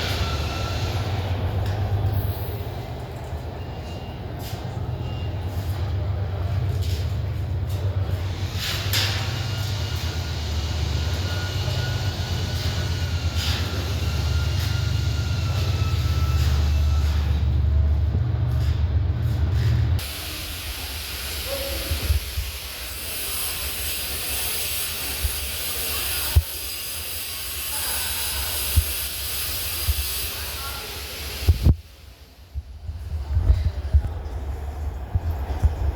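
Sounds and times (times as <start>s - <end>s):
train rumble: 0.0s - 35.9s
steady hiss: 20.0s - 32.6s.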